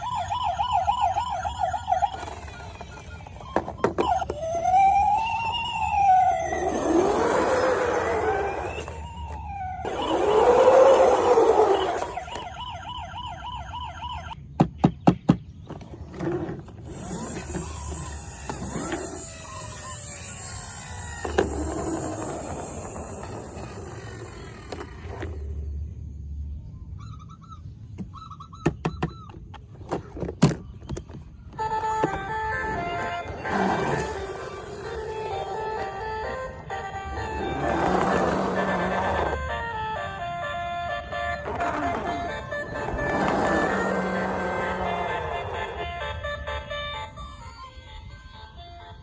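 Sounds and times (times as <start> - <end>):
siren wailing: 0.0 - 14.4, 17.1 - 25.5, 31.5 - 47.6.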